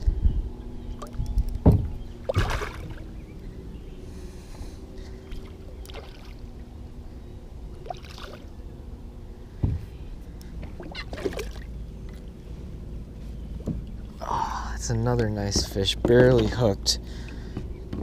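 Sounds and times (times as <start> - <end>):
water sloshing: 0.9 - 3.5, 4.6 - 8.6, 9.6 - 14.4
water splash: 2.2 - 3.1, 7.8 - 8.5, 10.8 - 11.7.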